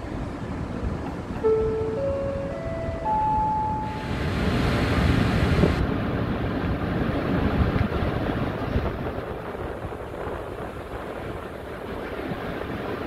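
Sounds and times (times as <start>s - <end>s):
train rumbling through station: 0.0s - 13.0s
wind buffeting microphone: 0.0s - 13.0s
platform chime: 1.4s - 4.2s.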